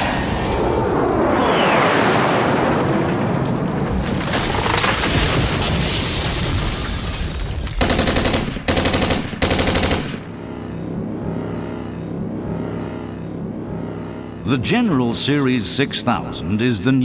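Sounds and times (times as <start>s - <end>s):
machine-gun fire: 7.8s - 10.6s.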